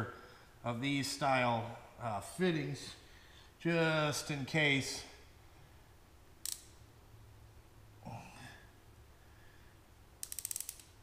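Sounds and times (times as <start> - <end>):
sharp click: 6.4 - 6.8, 10.2 - 11.0
rapid ratcheting clicks: 10.2 - 11.0.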